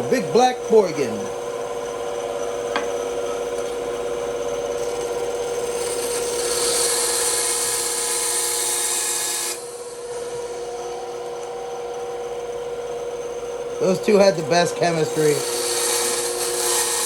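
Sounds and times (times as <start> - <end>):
bandsaw blade cutting wood: 0.0 - 1.3, 4.8 - 10.9, 13.1 - 17.0
bandsaw running: 0.0 - 17.0.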